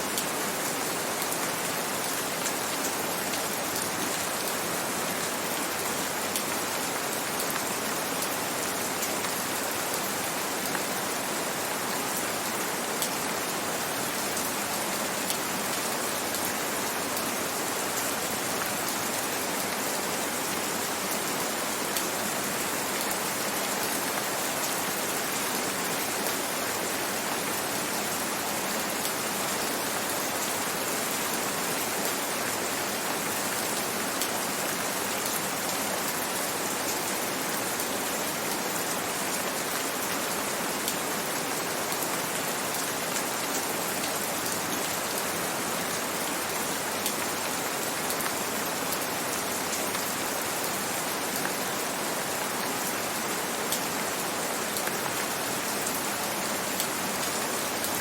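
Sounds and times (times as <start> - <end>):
gentle rain hiss: 0.0 - 58.0.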